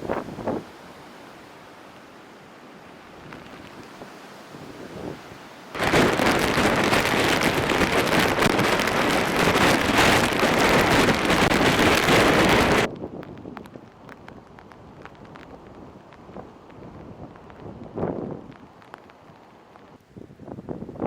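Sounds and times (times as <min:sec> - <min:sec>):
wind on microphone: 0:00.0 - 0:00.7, 0:05.8 - 0:21.0
driving rain: 0:00.0 - 0:21.0.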